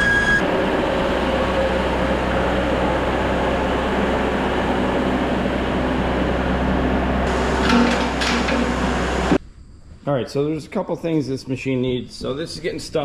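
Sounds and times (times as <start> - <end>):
diesel engine running: 0.4 - 9.4.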